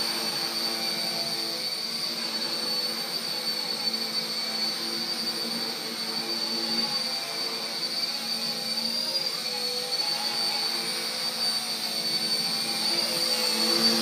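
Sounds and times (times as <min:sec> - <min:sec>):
toy helicopter motors and rotors: 0:00.0 - 0:14.0.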